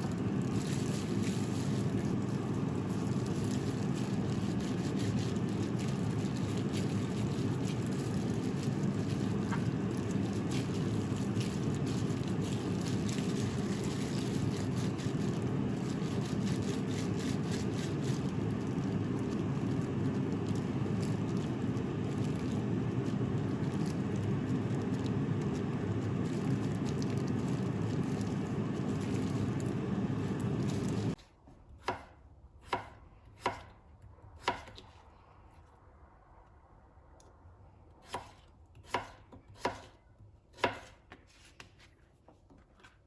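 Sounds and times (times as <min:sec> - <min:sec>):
knife chopping on cutting board: 0:31.8 - 0:33.7, 0:34.4 - 0:34.9, 0:38.0 - 0:39.9, 0:40.5 - 0:41.3.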